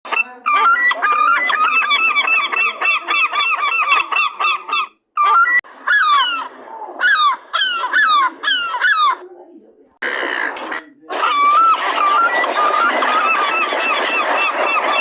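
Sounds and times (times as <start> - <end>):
gulls calling: 10.0 - 15.0.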